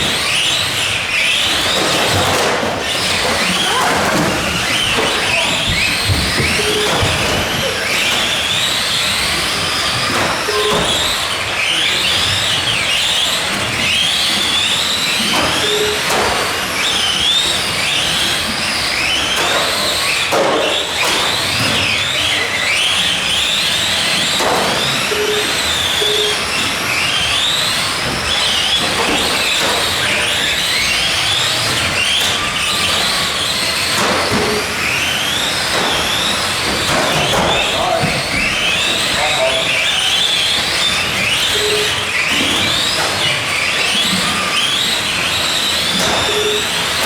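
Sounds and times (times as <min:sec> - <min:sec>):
electric motors and gears whining: 0:00.0 - 0:47.0.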